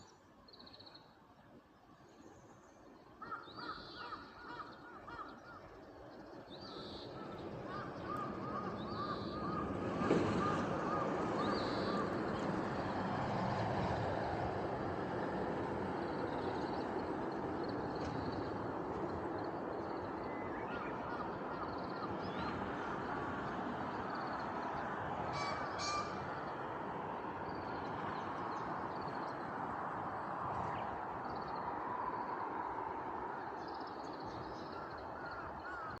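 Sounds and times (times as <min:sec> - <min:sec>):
crows cawing: 0:07.7 - 0:12.1, 0:34.8 - 0:36.0.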